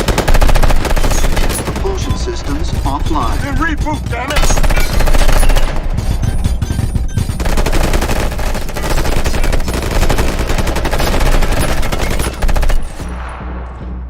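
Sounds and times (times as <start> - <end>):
automatic gunfire: 0.0 - 3.4, 7.4 - 13.0.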